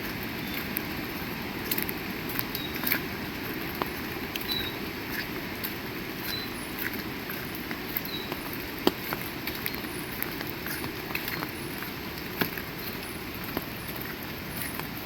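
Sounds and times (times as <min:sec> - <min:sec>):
heavy rain: 0:00.0 - 0:15.0
sharp drip taps: 0:03.6 - 0:15.0.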